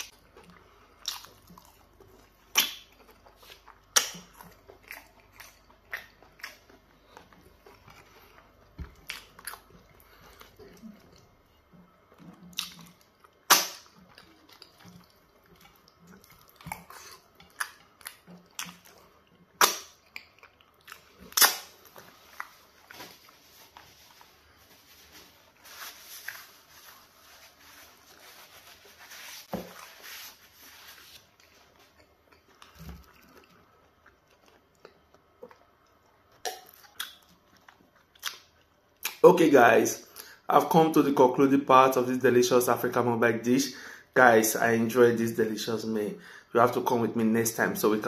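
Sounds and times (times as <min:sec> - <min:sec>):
wet chewing: 0:00.0 - 0:39.2
wet mouth smacks: 0:19.6 - 0:20.3, 0:20.9 - 0:21.7.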